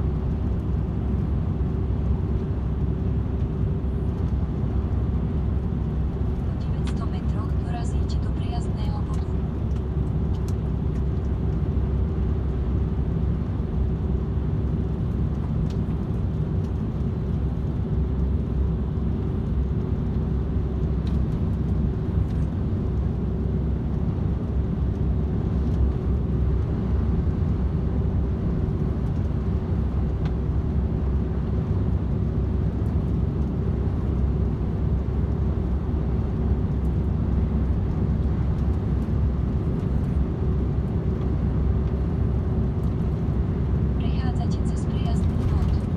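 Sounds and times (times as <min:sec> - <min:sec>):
constant hum: 0:00.0 - 0:45.9
truck engine and tyre drone: 0:00.0 - 0:45.9.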